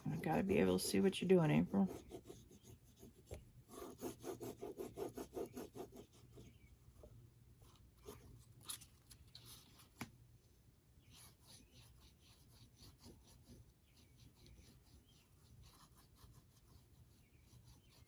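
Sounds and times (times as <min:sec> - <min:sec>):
rubbing strokes on paper: 0:00.0 - 0:06.6, 0:11.0 - 0:18.0.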